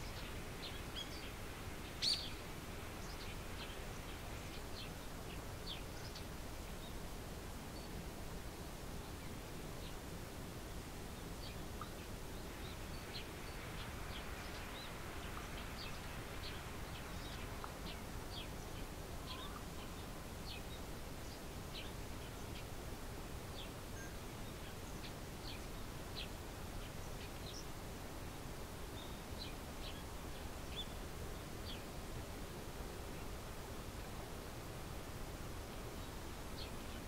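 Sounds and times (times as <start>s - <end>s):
small birds chirping: 0.0s - 7.0s, 11.1s - 22.7s, 23.5s - 32.0s, 35.6s - 37.0s
low background noise: 0.0s - 37.0s.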